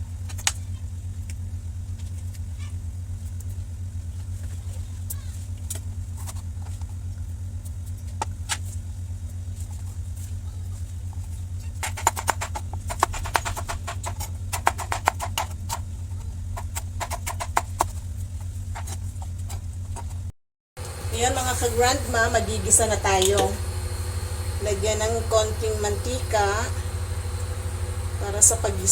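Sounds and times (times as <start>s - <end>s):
steady low hum: 0.0s - 28.9s
knife chopping on cutting board: 11.8s - 15.8s, 16.6s - 18.0s.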